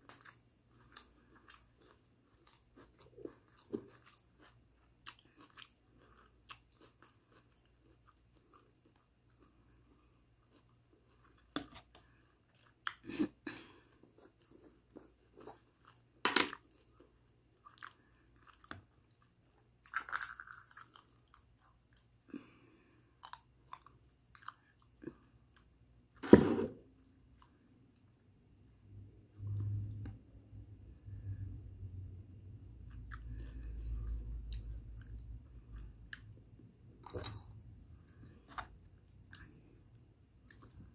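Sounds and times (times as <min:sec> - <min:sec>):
chicken being chewed and crunched: 0:00.0 - 0:22.4.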